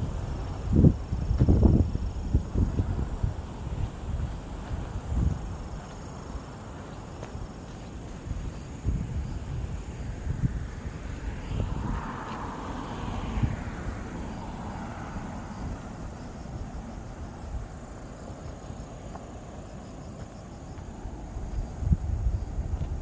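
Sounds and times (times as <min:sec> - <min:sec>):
high insect trill: 0:00.0 - 0:23.0
wind rumble on microphone: 0:00.0 - 0:23.0
broad rushing sound: 0:08.8 - 0:17.8.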